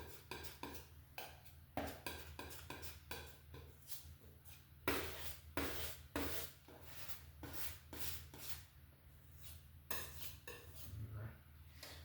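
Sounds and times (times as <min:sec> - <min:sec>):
paint scrubbing strokes: 0:00.0 - 0:11.0.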